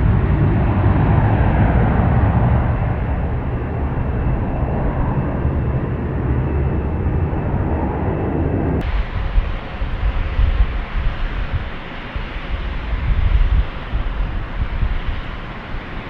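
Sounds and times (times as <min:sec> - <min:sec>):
airliner engine rumble: 0:00.0 - 0:16.0.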